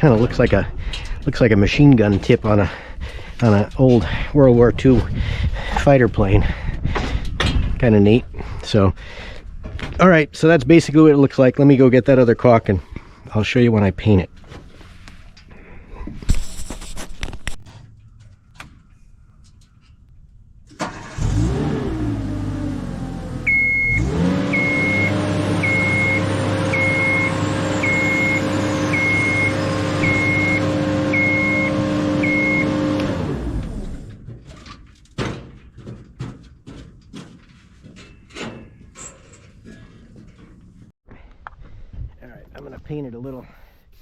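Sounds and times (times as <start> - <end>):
lift motor running: 20.8 - 34.1
motion alarm beeping: 23.5 - 32.8
clicks and handling knocks: 34.1 - 40.9.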